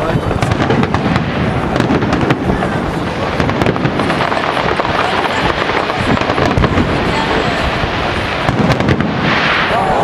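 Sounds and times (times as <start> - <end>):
fireworks crackling and popping: 0.0 - 10.0.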